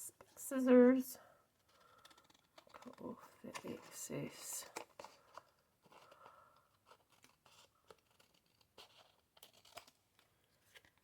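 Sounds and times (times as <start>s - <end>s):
paper rustling: 1.6s - 11.0s
scissors snipping paper: 6.8s - 10.0s.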